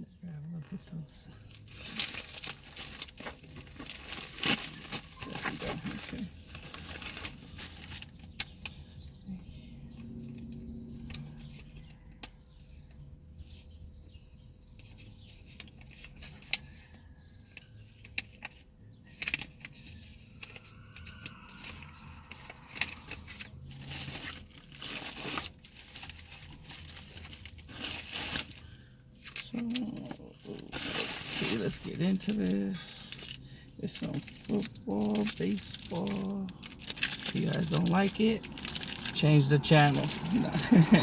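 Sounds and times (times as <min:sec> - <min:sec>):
packaging crinkling and tearing: 0:01.4 - 0:08.9, 0:18.0 - 0:41.0.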